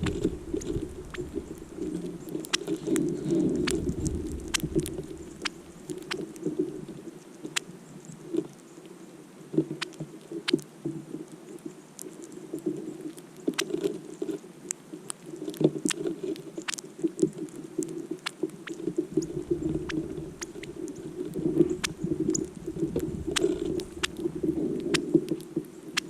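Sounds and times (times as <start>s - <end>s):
small birds chip calls: 0.0s - 6.4s, 17.6s - 26.0s
low uneven hum: 0.0s - 7.1s, 19.0s - 25.6s.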